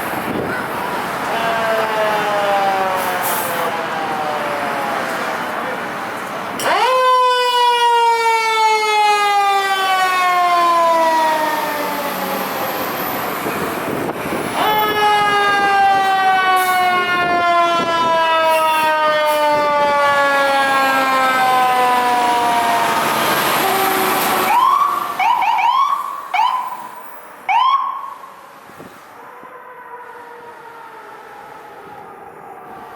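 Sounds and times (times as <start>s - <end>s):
mechanical siren wailing: 6.6s - 28.3s.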